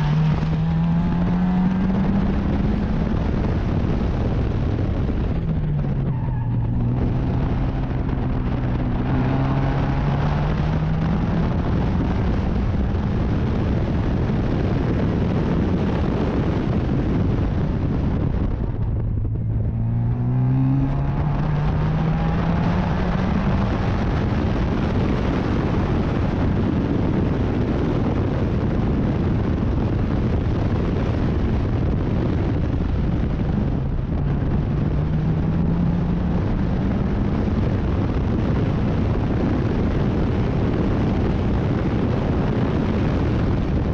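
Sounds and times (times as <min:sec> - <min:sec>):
racing car engine accelerating: 0:00.0 - 0:27.2.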